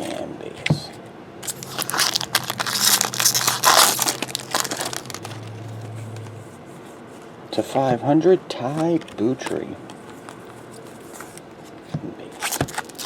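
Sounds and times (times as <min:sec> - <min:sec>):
low steady hum: 0:00.0 - 0:13.0
plastic wrapper crinkling: 0:01.4 - 0:05.6, 0:12.4 - 0:13.0.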